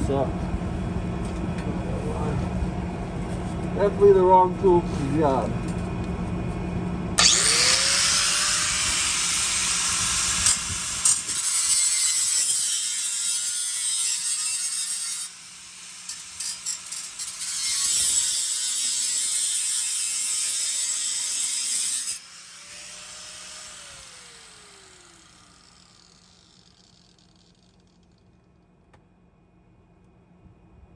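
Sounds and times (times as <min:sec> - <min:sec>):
power tool cutting steel pipe: 0:07.2 - 0:27.9.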